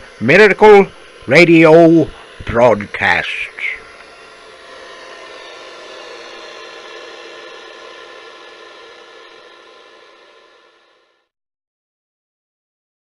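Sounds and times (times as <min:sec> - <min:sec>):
static hiss: 0:00.0 - 0:04.9
faint hum tones: 0:00.0 - 0:11.3.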